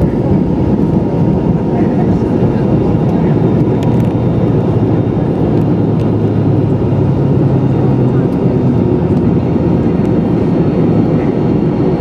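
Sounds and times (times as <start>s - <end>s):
jet cabin rumble: 0.0s - 12.0s
jet engine whine: 0.0s - 12.0s.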